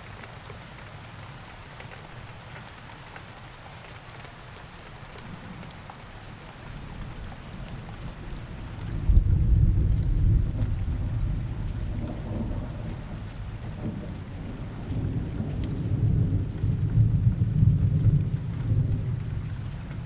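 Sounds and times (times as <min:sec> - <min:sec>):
steady rain: 0:00.0 - 0:20.0
low rolling thunder: 0:07.7 - 0:20.0.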